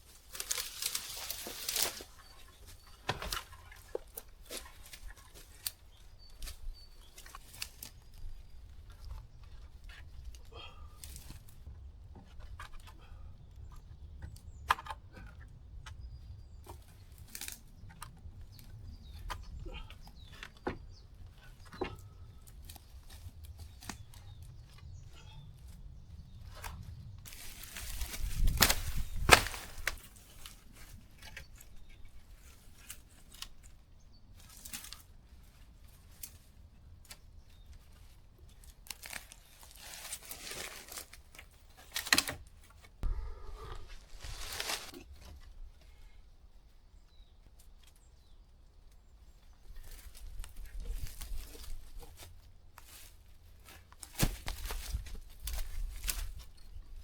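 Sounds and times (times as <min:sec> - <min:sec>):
dry leaves rustling: 0:00.0 - 0:03.3, 0:27.3 - 0:31.2, 0:38.0 - 0:42.1, 0:43.7 - 0:45.0
twigs cracking and snapping: 0:00.1 - 0:11.6, 0:16.6 - 0:20.8, 0:21.6 - 0:24.9, 0:26.4 - 0:33.8, 0:34.4 - 0:43.0, 0:43.7 - 0:45.4, 0:49.7 - 0:57.0.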